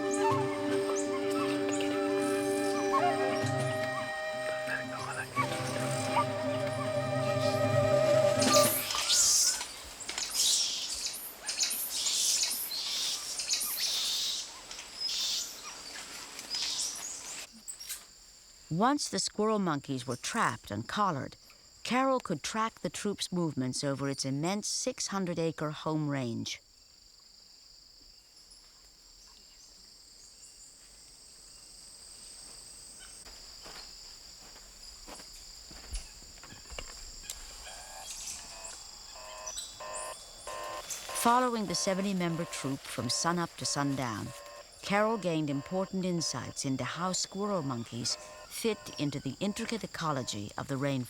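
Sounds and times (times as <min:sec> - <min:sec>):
insect chorus drone: 0:00.0 - 0:18.8, 0:26.0 - 0:51.0
rasping hissy animal calls: 0:37.7 - 0:50.5.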